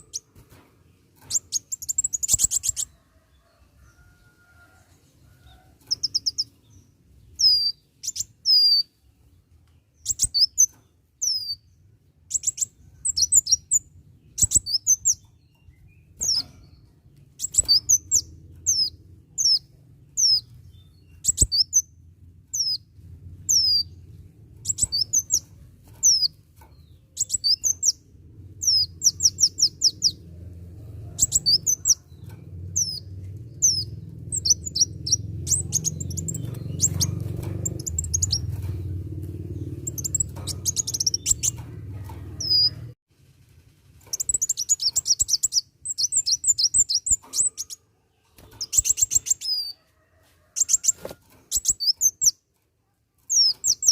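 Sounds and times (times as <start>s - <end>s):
low background hum: 0.0s - 49.2s
sharp bird clicks: 1.2s - 2.9s, 39.7s - 41.7s
sunbird singing: 5.5s - 9.0s, 10.0s - 30.2s, 32.6s - 41.6s.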